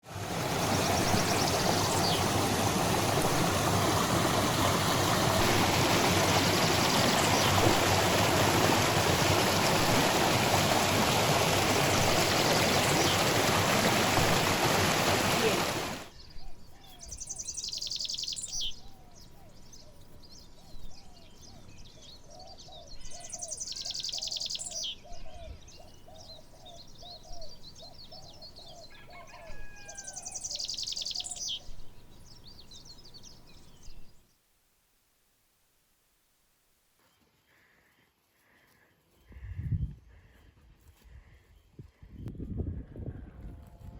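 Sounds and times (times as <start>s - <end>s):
birds chirping: 0.2s - 34.3s.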